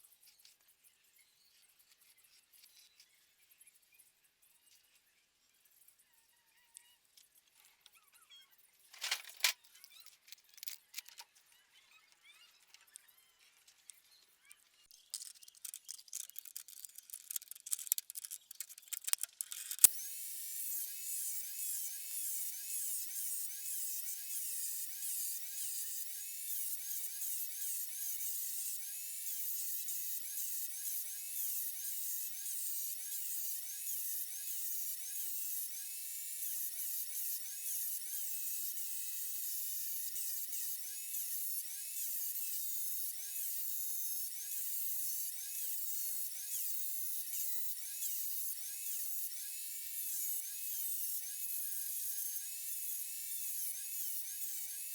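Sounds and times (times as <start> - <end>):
rotary tool whining: 8.9 - 14.0, 14.9 - 54.9.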